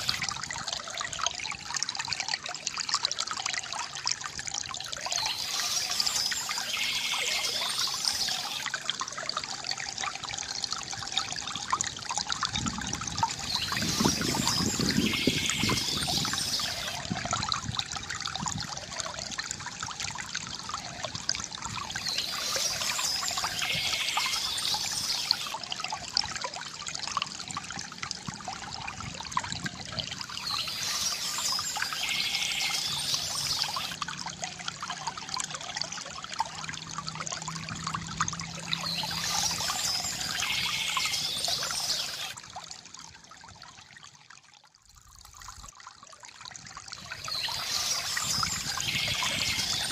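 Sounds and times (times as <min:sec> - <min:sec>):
fountain water trickling and gurgling: 0:00.0 - 0:49.9.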